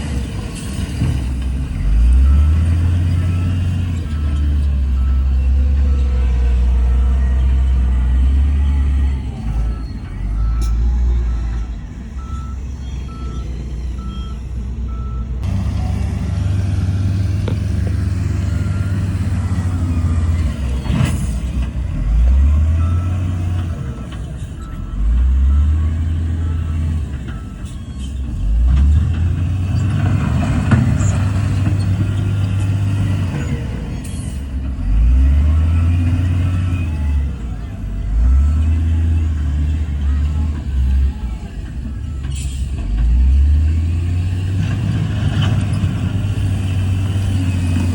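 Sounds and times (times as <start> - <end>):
heavy diesel engine working: 0.0 - 47.9
reversing beeper: 1.7 - 28.6.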